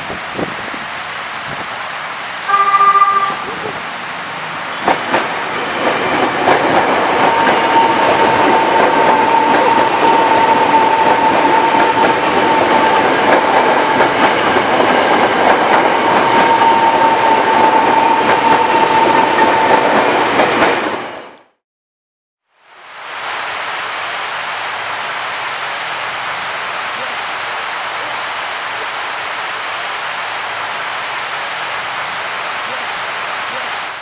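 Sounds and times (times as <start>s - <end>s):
electric train passing: 0.8s - 21.4s
wheels clattering over rails: 4.8s - 20.8s.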